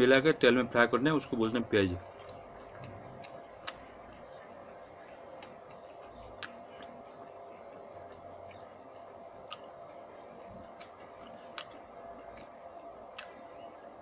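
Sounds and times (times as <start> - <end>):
faint steady hum: 0.0 - 14.0
man chewing fried food: 2.0 - 14.0
mouth clicks: 2.1 - 4.4, 10.6 - 13.4.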